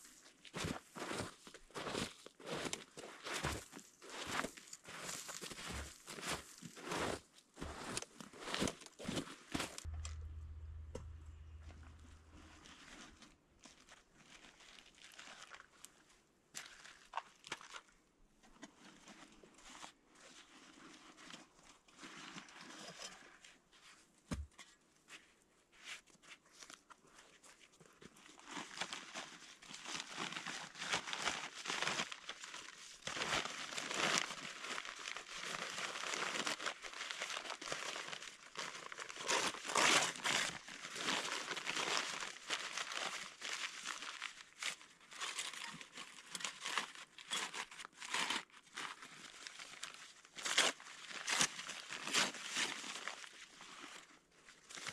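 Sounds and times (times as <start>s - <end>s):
materials rustling and crunching: 0.6s - 17.8s.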